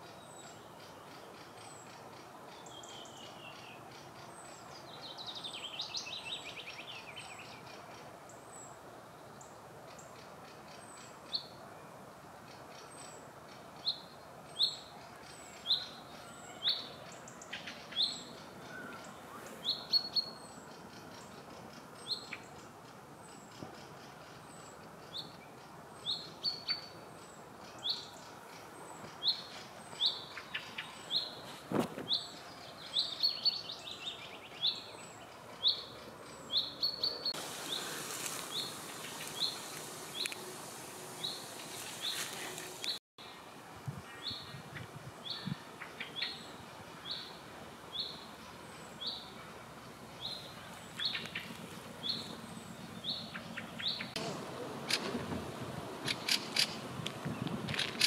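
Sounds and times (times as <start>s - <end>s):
other birds calling: 12.5s - 43.0s, 44.0s - 58.0s
songbird rising chirp: 24.4s - 43.4s
steady hiss: 37.3s - 58.0s.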